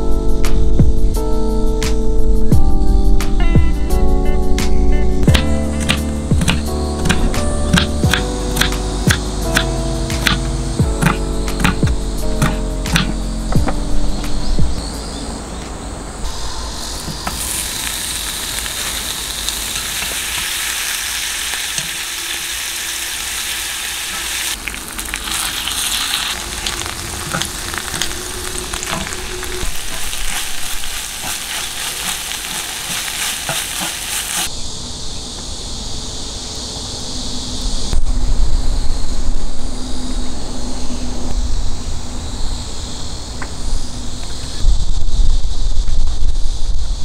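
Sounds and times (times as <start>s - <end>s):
food sizzling on a griddle: 17.0s - 34.5s.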